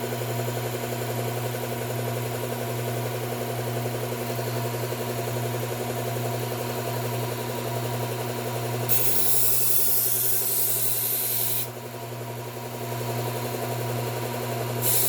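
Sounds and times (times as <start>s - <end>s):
blade grinding on belt: 8.9s - 11.7s, 14.8s - 15.0s
belt sharpener motor humming: 8.9s - 11.8s, 14.7s - 15.0s.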